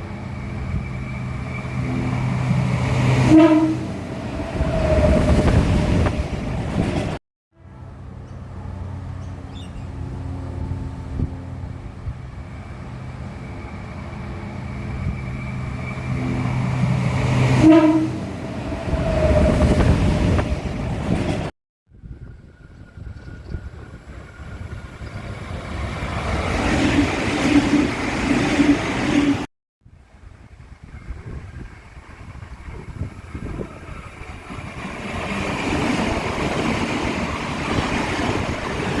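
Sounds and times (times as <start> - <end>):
rumble of train passing: 0.0 - 39.0
train engine hum: 0.0 - 39.0
train horn: 3.1 - 4.2, 17.4 - 18.5
wind buffeting microphone: 4.2 - 7.2, 18.4 - 39.0.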